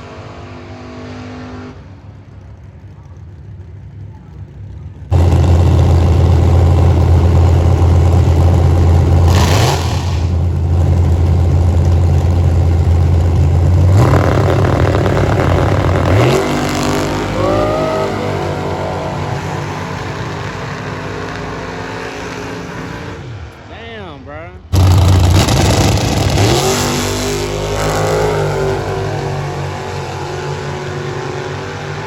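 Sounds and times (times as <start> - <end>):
loud car engine revving: 5.1 - 23.7, 24.7 - 32.0
faint rising engine tones: 10.0 - 23.7.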